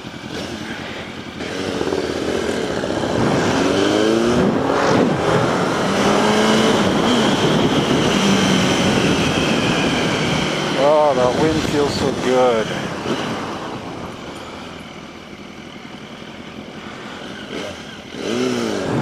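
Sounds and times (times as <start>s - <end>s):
motorcycle engine accelerating: 0.0s - 19.0s
wind rushing over microphone: 1.4s - 14.2s, 18.5s - 19.0s.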